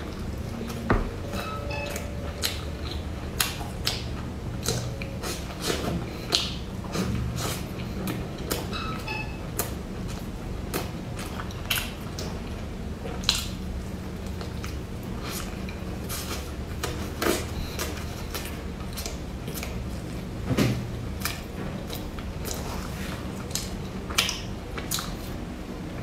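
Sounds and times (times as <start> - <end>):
low hum: 0.0 - 11.6
chewing bread rolls: 2.0 - 8.7, 9.5 - 26.0.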